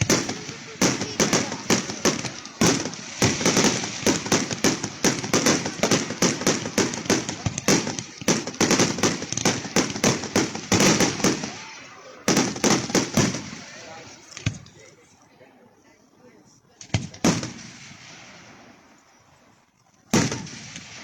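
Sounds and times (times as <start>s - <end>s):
fireworks bangs and crackles: 0.0s - 14.9s, 16.8s - 19.0s, 20.1s - 21.0s.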